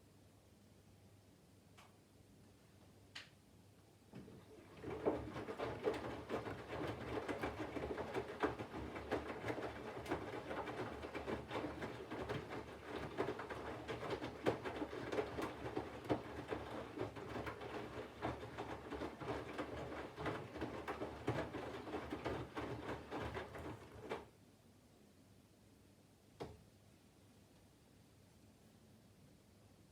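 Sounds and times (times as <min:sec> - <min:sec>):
washing machine drum tumbling: 0:04.2 - 0:24.3
water sloshing and laundry thudding: 0:04.2 - 0:24.3.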